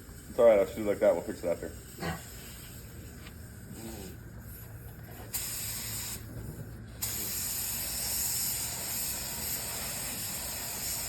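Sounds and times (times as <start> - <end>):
paint spray gun hissing: 5.3 - 6.3, 7.0 - 11.0.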